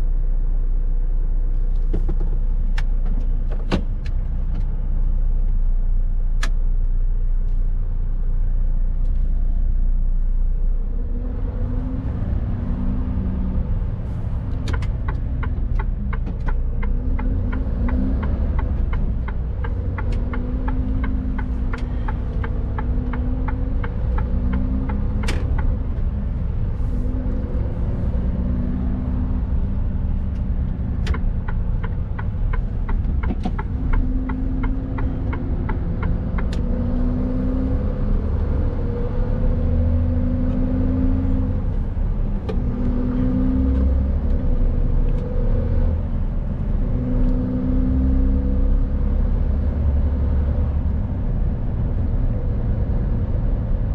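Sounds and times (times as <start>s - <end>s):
drivetrain and road rumble: 0.0s - 53.9s
truck diesel engine shifting gears: 10.8s - 53.9s
regular ticking: 14.7s - 26.0s, 30.2s - 36.8s.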